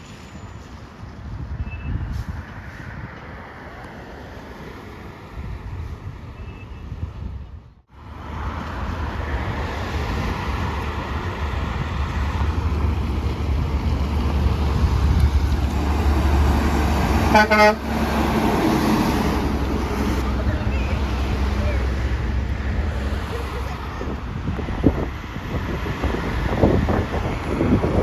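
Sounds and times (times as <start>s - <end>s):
truck engine rumble: 7.9s - 28.0s
truck horn blast: 16.8s - 18.5s.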